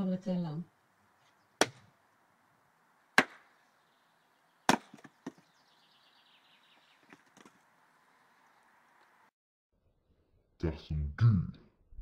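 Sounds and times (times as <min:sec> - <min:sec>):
axe chopping wood: 0:01.6 - 0:01.9, 0:03.2 - 0:03.5, 0:04.7 - 0:05.4.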